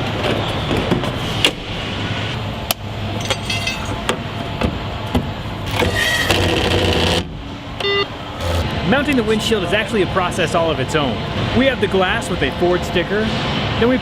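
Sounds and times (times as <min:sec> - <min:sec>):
machinery hum: 0:00.0 - 0:14.0
short beeps: 0:07.8 - 0:08.7.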